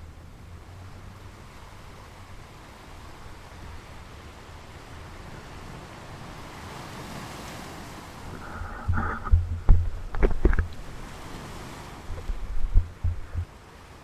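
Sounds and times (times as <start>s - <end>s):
sea wash: 0.0s - 14.0s
wind on the microphone: 4.6s - 13.5s.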